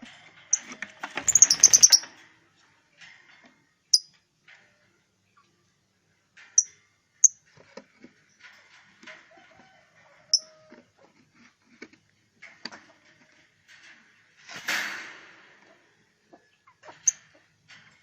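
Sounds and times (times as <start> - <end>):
lovebirds chirping shrilly: 1.3 - 2.0.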